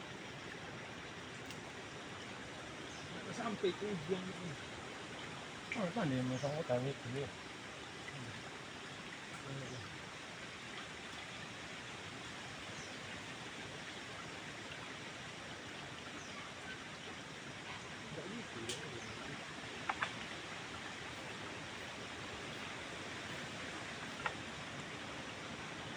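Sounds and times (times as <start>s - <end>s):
stream water running: 0.0s - 25.9s
faint bird chirps: 15.9s - 25.0s.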